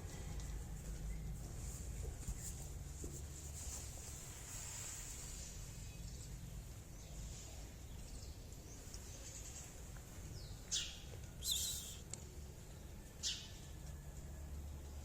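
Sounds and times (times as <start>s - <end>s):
small bird chirping: 10.7s - 12.0s.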